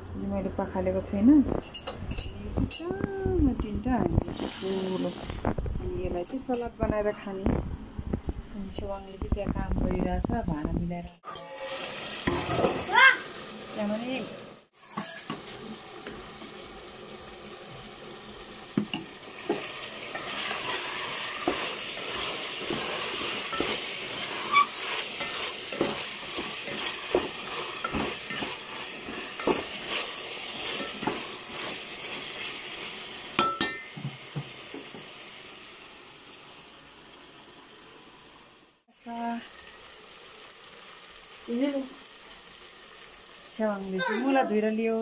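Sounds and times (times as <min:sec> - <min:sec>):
food sizzling in a pot: 0:00.8 - 0:45.0
spatula knocking and scraping pot: 0:18.8 - 0:31.8.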